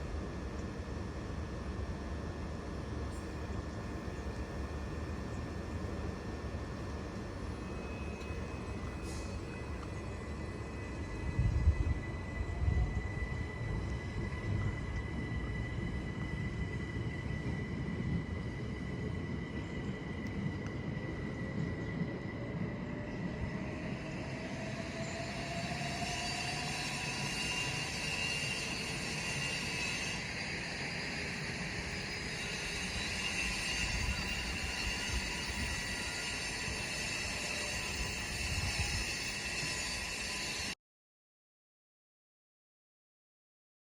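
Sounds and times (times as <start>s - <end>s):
electric train rumble and whine: 0.0s - 40.8s
train hiss: 7.7s - 12.1s, 24.1s - 40.8s.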